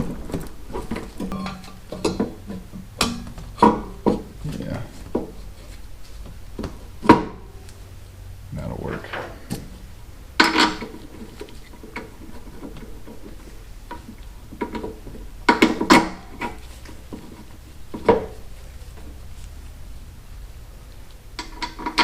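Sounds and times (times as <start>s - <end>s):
metal tools clanking: 0.0s - 5.4s.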